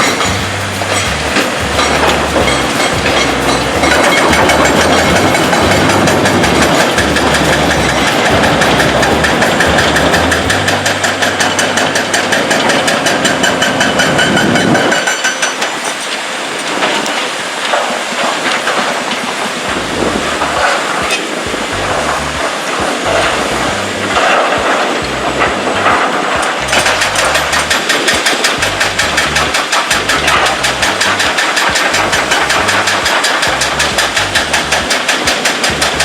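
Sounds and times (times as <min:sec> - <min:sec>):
heavy machinery clattering: 0:00.0 - 0:36.0
machinery whine: 0:00.0 - 0:36.0.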